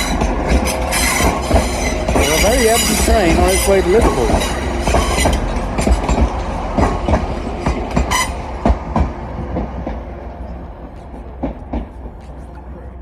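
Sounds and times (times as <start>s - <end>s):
wheel squeal: 0.0s - 9.1s
train wheels clicking over rail joints: 0.0s - 13.0s.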